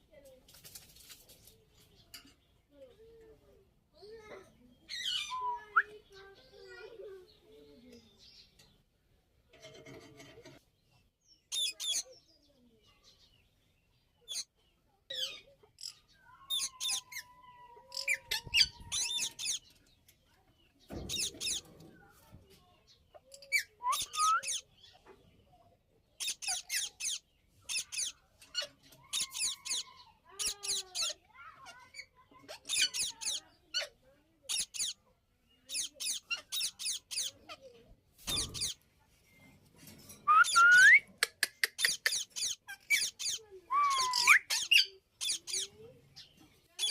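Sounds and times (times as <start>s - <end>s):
parakeets squawking: 16.5s - 17.2s, 17.9s - 19.7s, 26.2s - 35.0s, 35.6s - 37.7s, 40.3s - 41.0s, 41.7s - 45.8s.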